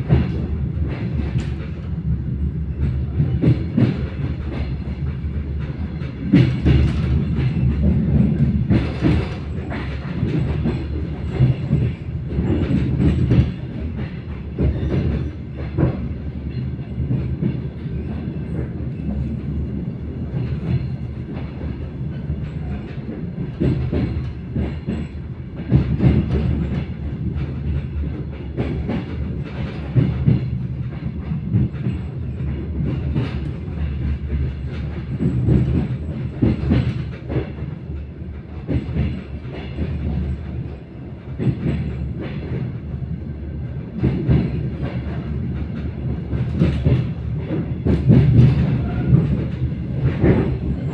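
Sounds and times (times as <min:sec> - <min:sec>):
train rumbling along track: 0:00.0 - 0:50.9
wheels clacking on rails: 0:00.0 - 0:50.9.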